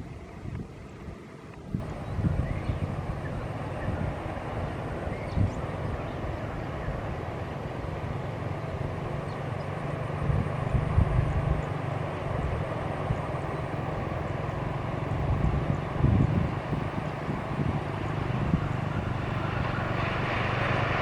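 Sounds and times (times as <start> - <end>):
train rumbling past: 1.8 - 21.0.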